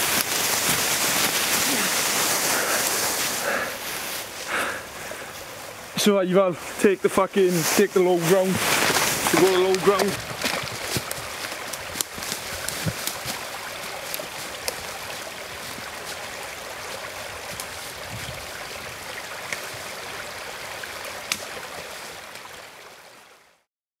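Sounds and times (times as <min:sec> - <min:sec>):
stream flowing: 0:00.0 - 0:23.7.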